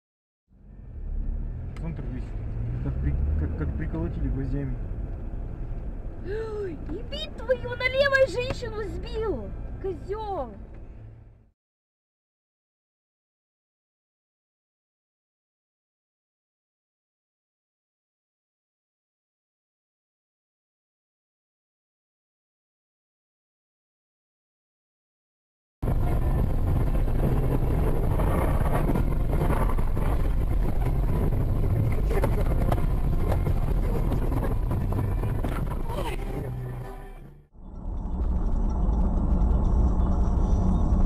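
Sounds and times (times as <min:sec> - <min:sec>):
low car rumble: 0:00.5 - 0:11.5, 0:25.8 - 0:41.0
wind buffeting microphone: 0:25.8 - 0:36.4.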